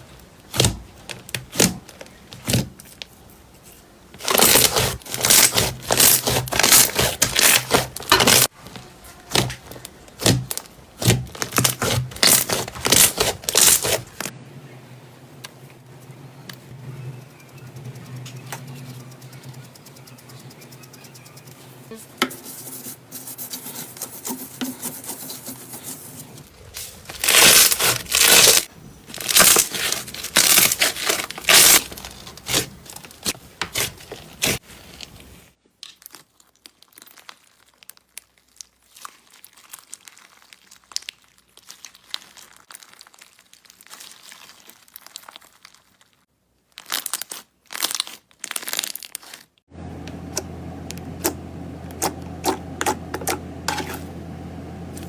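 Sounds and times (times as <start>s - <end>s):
low steady hum: 14.0s - 23.8s, 49.7s - 55.0s
slime crackling and popping: 35.8s - 49.6s.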